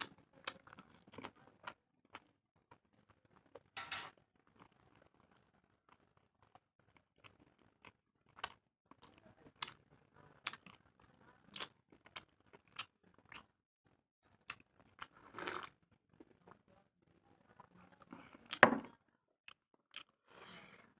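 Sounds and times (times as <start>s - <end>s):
person chewing with wet smacks: 10.4s - 13.5s, 19.4s - 20.2s.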